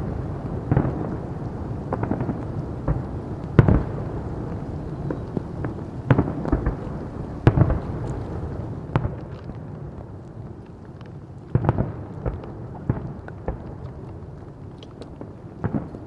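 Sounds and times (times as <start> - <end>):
fireworks exploding: 0.0 - 9.2.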